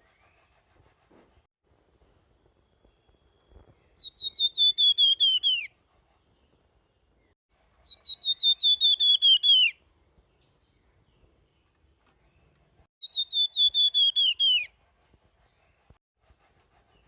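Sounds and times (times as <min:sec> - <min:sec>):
songbird whistling: 0:03.5 - 0:05.7, 0:07.8 - 0:09.8, 0:13.0 - 0:14.8.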